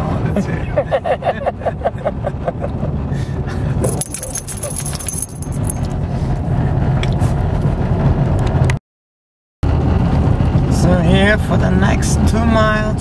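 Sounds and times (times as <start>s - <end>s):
car engine and tyre noise: 0.0s - 8.8s, 9.6s - 13.0s
thin high ringing: 3.8s - 6.0s.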